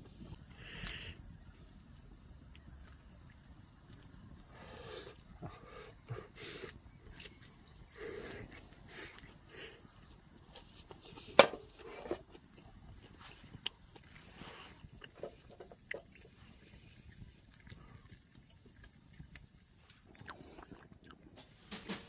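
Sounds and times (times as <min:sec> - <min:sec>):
person chewing and biting: 0:12.3 - 0:21.4.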